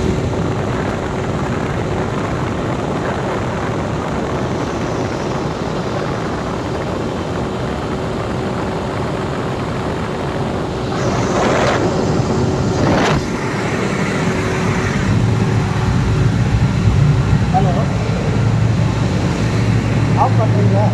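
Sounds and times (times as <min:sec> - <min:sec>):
diesel generator running: 0:00.0 - 0:20.9
hissing rush: 0:10.1 - 0:20.9.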